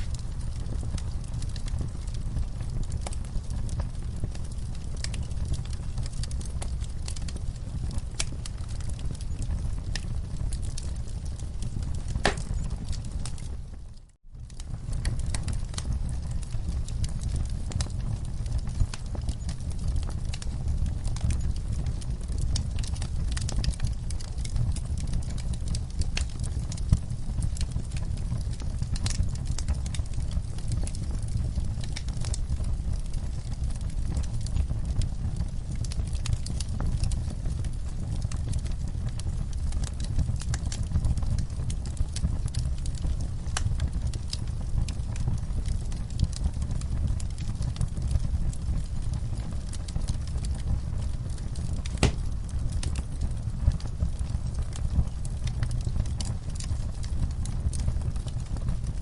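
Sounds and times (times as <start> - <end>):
low rumble of flames: 0.0 - 59.0
wood fire crackling and popping: 0.0 - 59.0.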